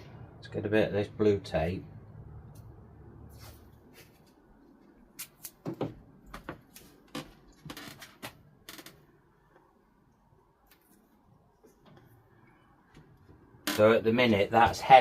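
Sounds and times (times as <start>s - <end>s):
masking tape pulled and torn: 5.2s - 5.7s.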